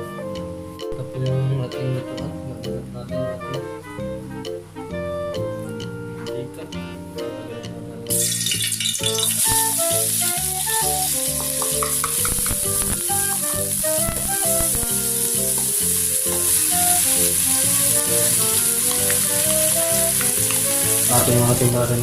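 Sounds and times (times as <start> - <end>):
background music: 0.0 - 22.0
food sizzling in oil: 8.1 - 22.0.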